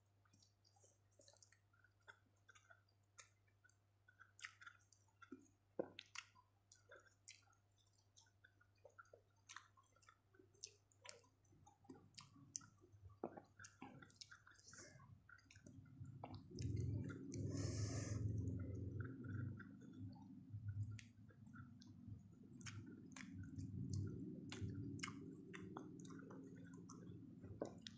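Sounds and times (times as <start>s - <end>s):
chewing food: 0.0s - 27.9s
wet mouth clicks and smacks: 0.2s - 27.9s
low hum: 15.8s - 27.9s.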